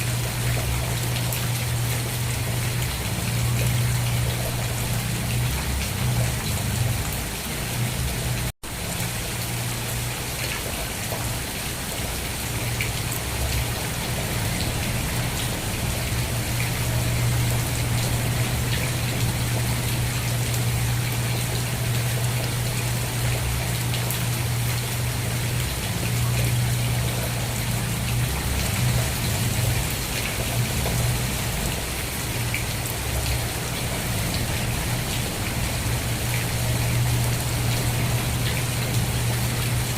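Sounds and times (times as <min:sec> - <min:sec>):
steady rain: 0:00.0 - 0:39.9
raindrop ticks: 0:14.5 - 0:31.8.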